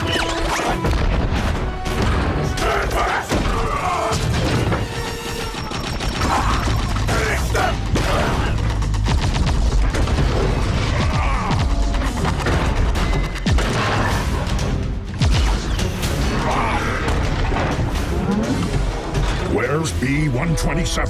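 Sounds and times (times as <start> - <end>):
film score music: 0.0 - 21.0
blaster fire: 3.3 - 14.4.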